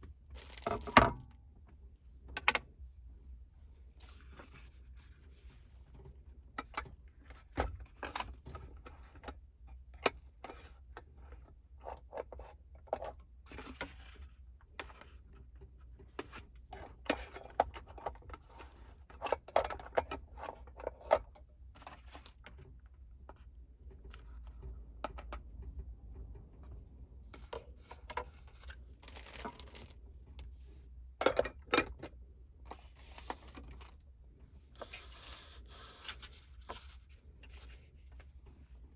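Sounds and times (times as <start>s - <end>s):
small objects clicking and scraping: 28.4s - 30.0s.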